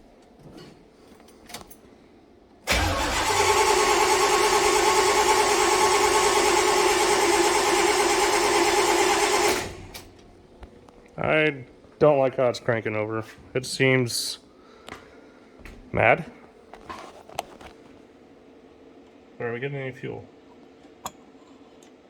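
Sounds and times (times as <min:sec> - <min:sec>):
engine starter cranking: 0:02.7 - 0:10.3.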